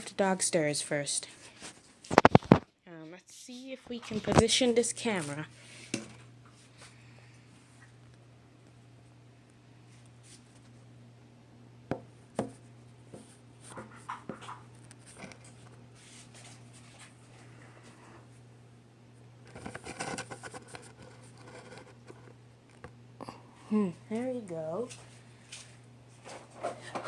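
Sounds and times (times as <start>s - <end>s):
steady low hum: 0.0s - 27.0s
rustling and scraping: 3.9s - 7.0s, 13.2s - 18.0s, 19.4s - 22.4s, 24.8s - 27.0s
light clicks and scrapes: 19.5s - 22.4s.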